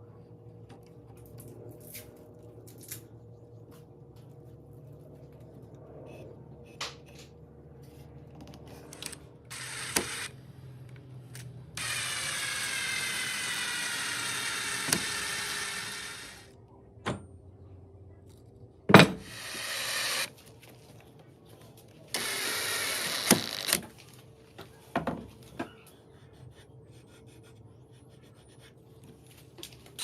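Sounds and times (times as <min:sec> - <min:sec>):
power tool running: 0:08.9 - 0:10.4, 0:11.8 - 0:16.5, 0:19.0 - 0:20.3, 0:22.1 - 0:23.8.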